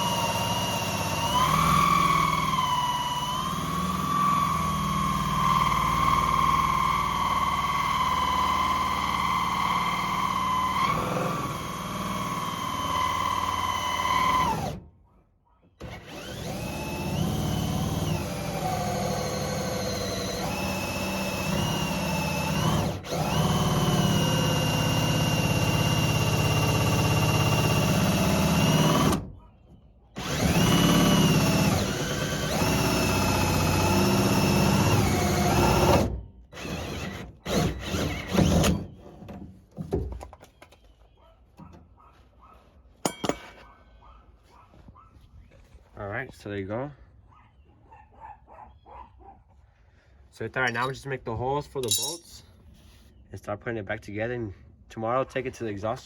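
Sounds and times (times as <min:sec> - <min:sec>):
power drill whining: 0:00.0 - 0:14.8, 0:15.8 - 0:29.3, 0:30.2 - 0:39.0.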